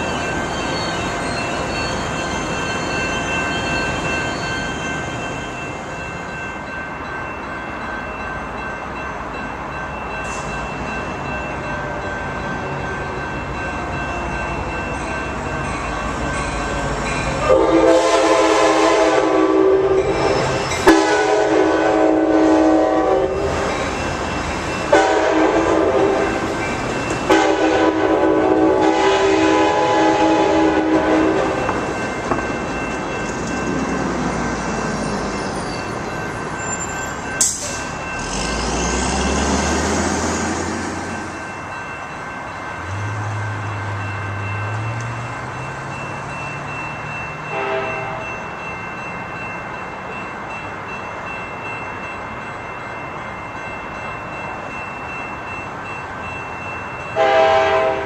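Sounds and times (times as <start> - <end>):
train rumbling: 0.0 - 58.0
train air horn blasts: 17.4 - 23.6, 24.9 - 26.4, 27.3 - 31.7, 47.5 - 48.2, 57.2 - 58.0.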